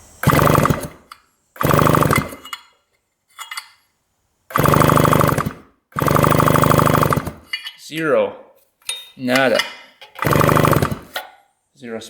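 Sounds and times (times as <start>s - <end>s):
electric starter cranking engine: 0.0s - 2.5s, 4.5s - 7.5s, 10.2s - 11.2s.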